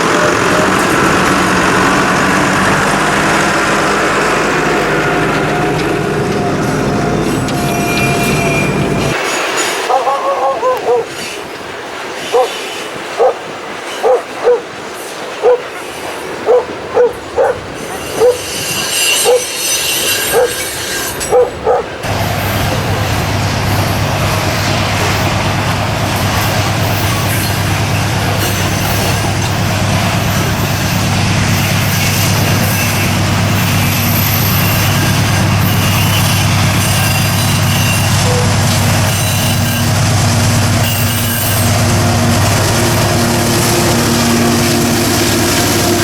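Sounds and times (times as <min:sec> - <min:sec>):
low vehicle drone: 0:00.0 - 0:09.2
passing train: 0:00.0 - 0:46.0
dog barking: 0:09.8 - 0:11.2, 0:12.3 - 0:12.6, 0:13.2 - 0:13.4, 0:14.0 - 0:14.7, 0:15.4 - 0:15.7, 0:16.4 - 0:18.4, 0:19.2 - 0:19.5, 0:20.3 - 0:20.6, 0:21.3 - 0:21.9, 0:38.2 - 0:38.6.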